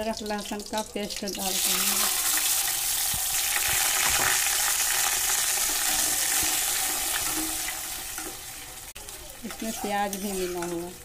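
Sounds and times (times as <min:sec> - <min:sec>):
paste sizzling in hot oil: 0:01.4 - 0:11.0
spatula stirring: 0:05.2 - 0:11.0.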